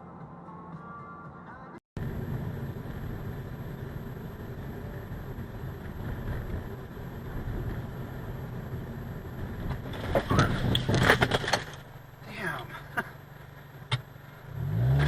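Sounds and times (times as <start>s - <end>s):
vehicle road and engine rumble: 0.1s - 15.0s
car crash crunching impacts: 9.6s - 12.0s.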